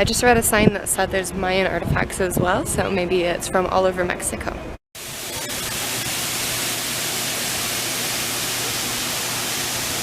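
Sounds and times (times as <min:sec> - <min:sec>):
loud rushing hiss: 0:05.0 - 0:10.0.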